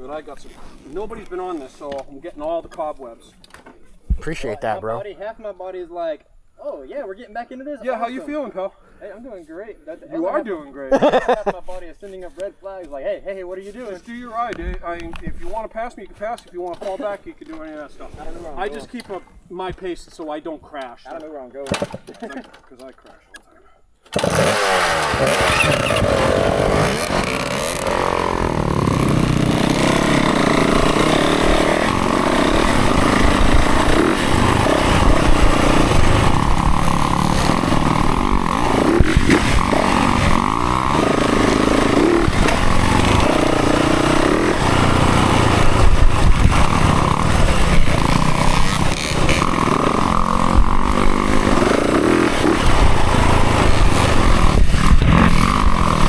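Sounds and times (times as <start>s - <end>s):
dirt bike engine revving: 24.1s - 56.0s.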